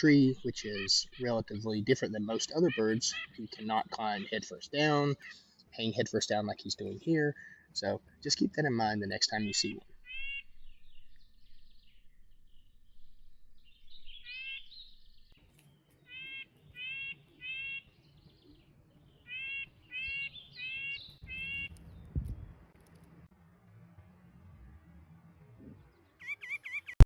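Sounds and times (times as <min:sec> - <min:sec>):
bird calling short notes: 0:00.0 - 0:05.5, 0:09.5 - 0:11.1, 0:14.0 - 0:15.0, 0:15.9 - 0:18.0, 0:19.2 - 0:22.0
low thump: 0:22.0 - 0:22.6.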